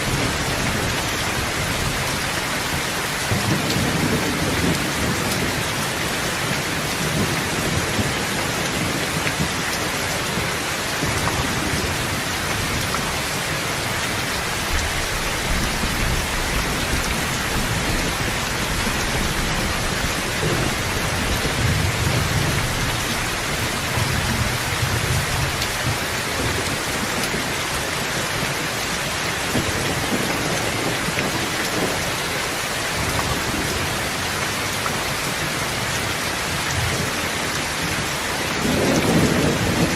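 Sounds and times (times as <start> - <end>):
heavy rain falling: 0.0 - 39.9
distant thunder rumble: 14.4 - 28.7, 36.7 - 39.9.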